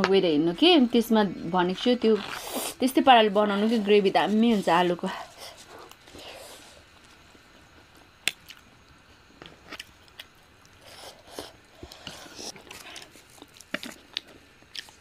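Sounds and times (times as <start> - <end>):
chewing and mouth sounds: 8.0 - 8.7, 9.4 - 15.0.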